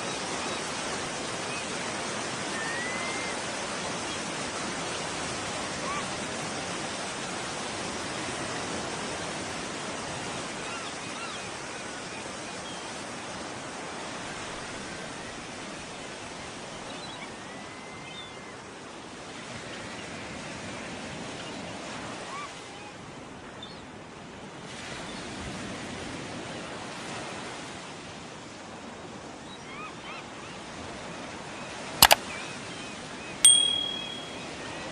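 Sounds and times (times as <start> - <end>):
sharp clicks: 33.5 - 34.3
faint high chirps: 33.5 - 34.4.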